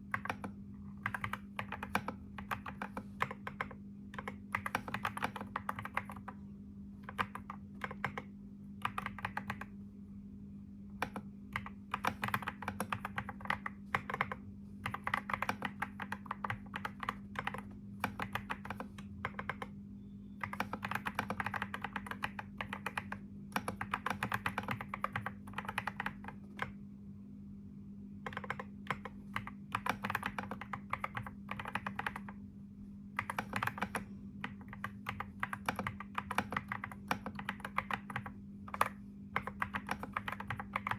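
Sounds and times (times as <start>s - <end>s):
typing on keyboard: 0.0s - 6.4s, 7.0s - 9.8s, 11.0s - 19.8s, 20.4s - 26.8s, 28.2s - 32.4s, 33.1s - 40.9s
steady low hum: 0.0s - 40.9s.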